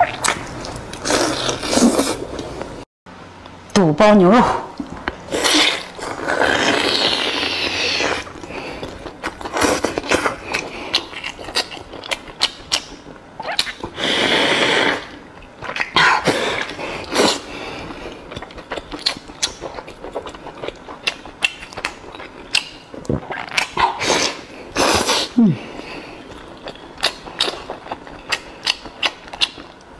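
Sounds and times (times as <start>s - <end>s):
wet chewing and lip-smacking: 4.8s - 14.0s, 16.6s - 24.4s, 25.8s - 29.9s.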